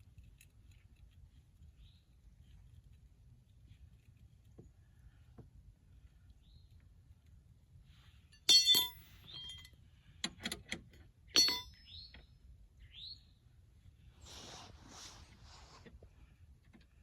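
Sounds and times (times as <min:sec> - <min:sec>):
sharp ringing clinks: 0:08.3 - 0:09.8, 0:11.4 - 0:12.0
bird chirping: 0:11.4 - 0:13.4.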